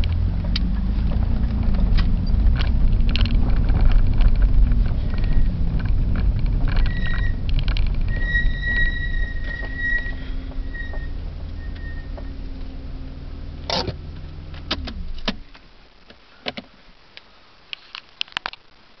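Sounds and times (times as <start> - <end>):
sharp clicks and knocks: 0.0 - 8.8
car engine idling: 0.0 - 16.0.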